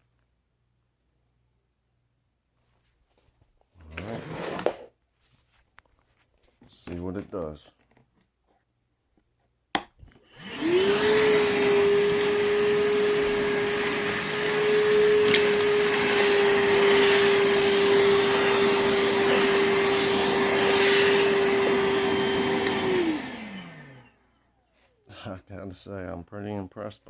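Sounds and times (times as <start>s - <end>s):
vacuum whine with rushing air: 10.3s - 24.2s.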